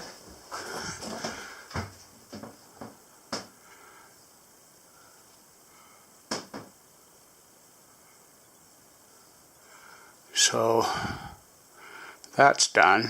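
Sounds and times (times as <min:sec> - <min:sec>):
sharp clicks and light knocks: 0:01.0 - 0:03.5, 0:06.3 - 0:06.8.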